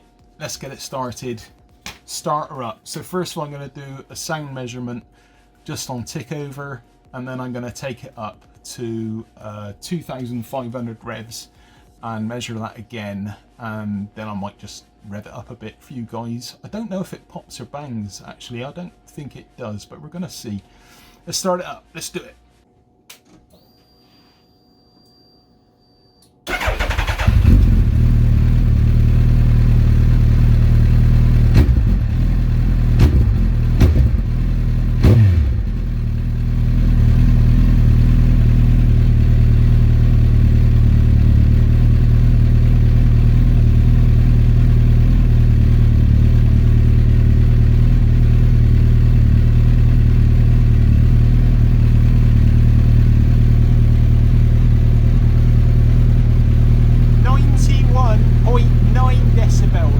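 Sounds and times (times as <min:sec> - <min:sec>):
motorcycle engine starting and idling: 0:26.5 - 0:59.9.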